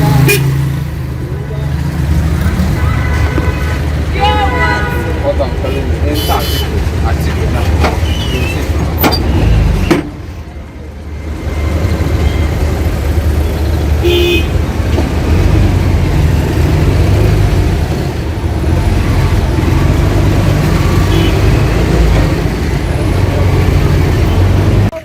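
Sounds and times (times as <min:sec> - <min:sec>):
road traffic rumble: 0:00.0 - 0:25.0
car horn toot: 0:00.2 - 0:00.6, 0:02.7 - 0:06.8, 0:14.0 - 0:14.6, 0:21.0 - 0:21.6.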